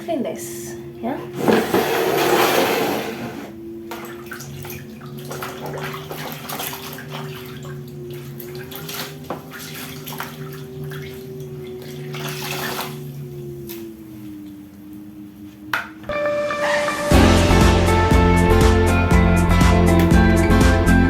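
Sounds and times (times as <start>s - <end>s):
scrubbing and wiping strokes: 1.3s - 3.6s
water splashing: 1.3s - 14.0s.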